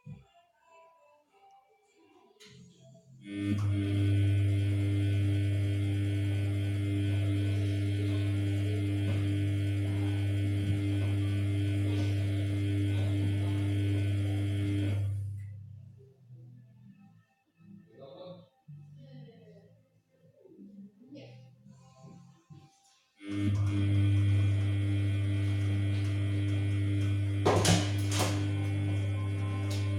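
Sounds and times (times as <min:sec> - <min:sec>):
washing machine electric hum: 0:03.2 - 0:15.8, 0:23.2 - 0:29.9.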